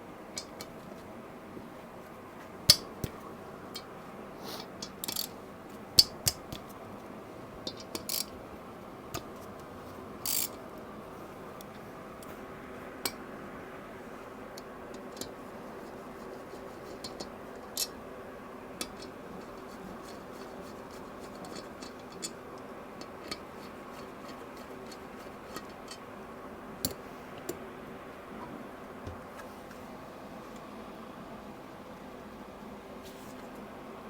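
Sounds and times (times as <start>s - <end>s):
steady hum: 0.0s - 34.0s
tools and metal parts clicking: 4.7s - 5.4s, 7.6s - 8.4s, 10.2s - 10.6s, 17.0s - 18.0s, 21.2s - 22.4s, 23.0s - 26.0s.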